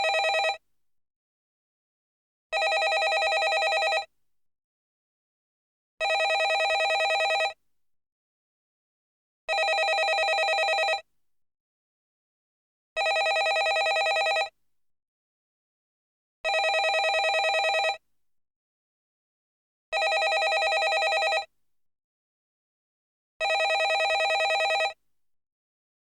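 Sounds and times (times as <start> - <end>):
telephone ringing: 0.0 - 0.6, 2.6 - 4.1, 6.0 - 7.6, 9.5 - 11.0, 13.0 - 14.5, 16.5 - 18.0, 20.0 - 21.5, 23.4 - 25.0.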